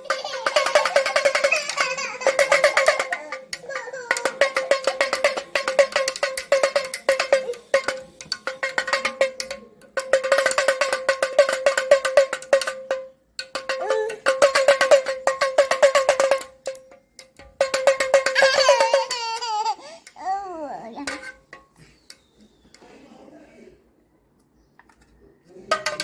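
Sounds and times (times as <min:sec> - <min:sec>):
hand drum rapid beats: 0:00.0 - 0:19.7, 0:25.7 - 0:26.0.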